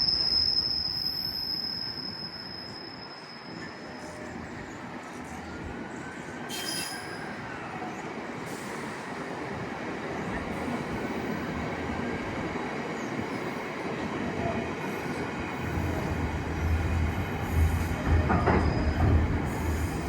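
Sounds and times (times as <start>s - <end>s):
train rumbling past: 0.0s - 20.0s.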